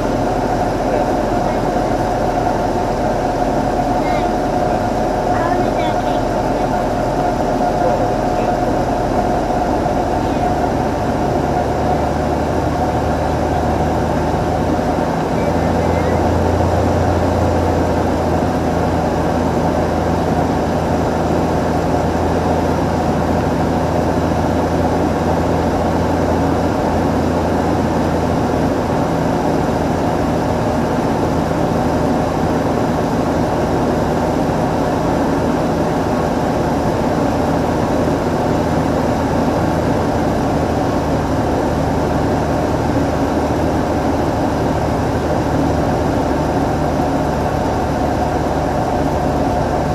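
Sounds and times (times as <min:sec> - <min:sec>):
propeller plane engine drone: 0:00.0 - 0:49.9.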